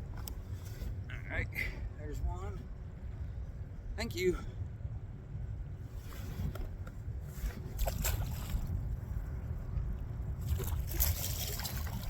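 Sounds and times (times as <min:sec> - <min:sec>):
wind buffeting microphone: 0:00.0 - 0:12.0
water sloshing against boat hull: 0:06.0 - 0:08.8, 0:10.4 - 0:12.0.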